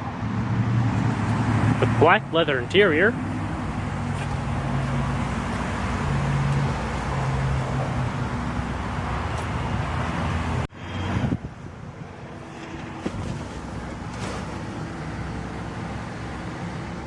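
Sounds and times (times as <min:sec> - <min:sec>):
wind on microphone: 0:04.4 - 0:14.7.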